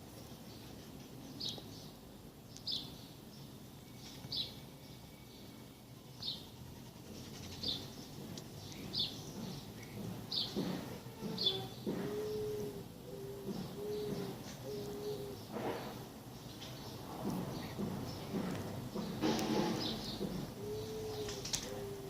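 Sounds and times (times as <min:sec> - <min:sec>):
faint outdoor background noise: 0:00.0 - 0:22.0
bird chirping: 0:00.2 - 0:15.5.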